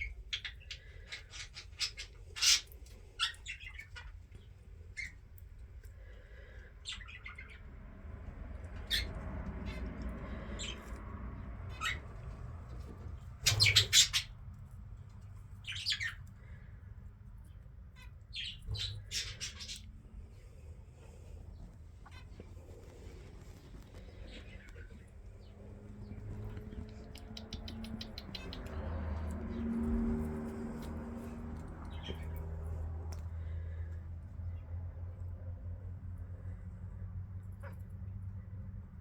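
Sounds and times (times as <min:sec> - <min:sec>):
birds squawking: 0:00.0 - 0:04.1, 0:08.8 - 0:10.9, 0:11.7 - 0:12.0, 0:13.4 - 0:14.4, 0:15.6 - 0:16.2, 0:18.0 - 0:20.0, 0:24.0 - 0:29.6
birds chirping: 0:00.0 - 0:05.2, 0:06.0 - 0:07.8, 0:08.7 - 0:12.2, 0:13.4 - 0:14.4, 0:15.6 - 0:16.8, 0:17.5 - 0:32.8.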